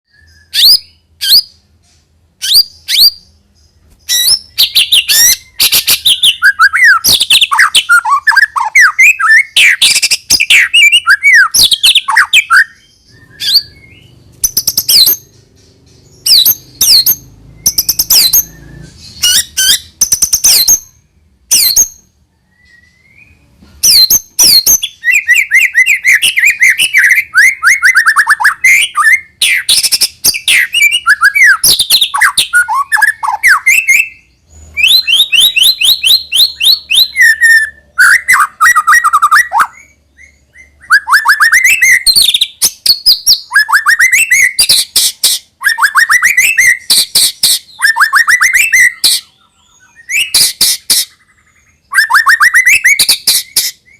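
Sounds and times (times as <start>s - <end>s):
bird singing whistled notes: 0.1s - 1.7s, 2.4s - 53.9s
bird twittering runs: 2.8s - 20.7s.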